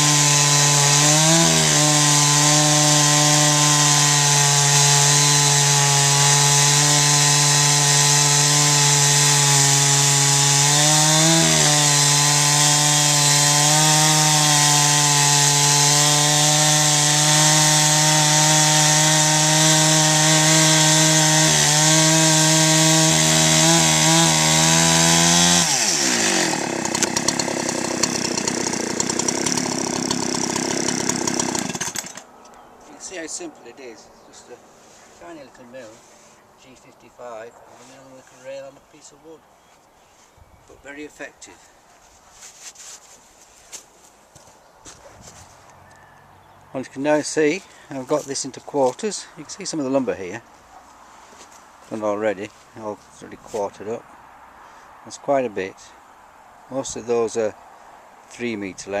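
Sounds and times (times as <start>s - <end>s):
chainsaw cutting through log: 0.0s - 32.3s, 46.8s - 50.2s.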